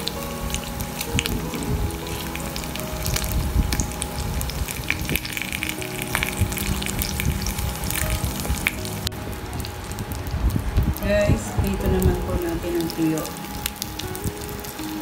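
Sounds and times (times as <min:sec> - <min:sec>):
squid sizzling in oil: 0:00.0 - 0:09.8.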